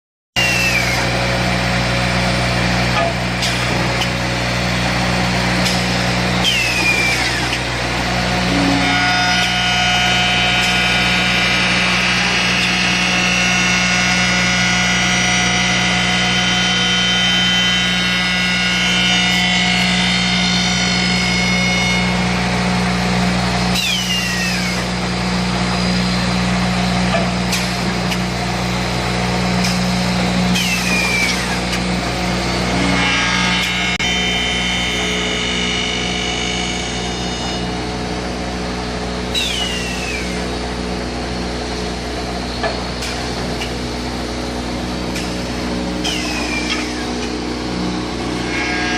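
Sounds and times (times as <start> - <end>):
machine motor hum: 0.4 - 48.9
short falling whines: 45.2 - 47.4.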